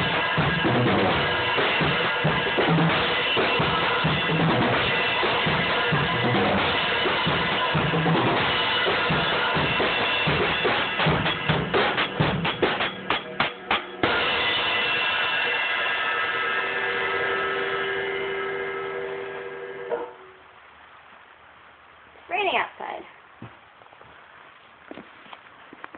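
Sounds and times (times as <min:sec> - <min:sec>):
drum kit playing: 0:00.0 - 0:20.3
cymbal ringing: 0:00.0 - 0:20.4.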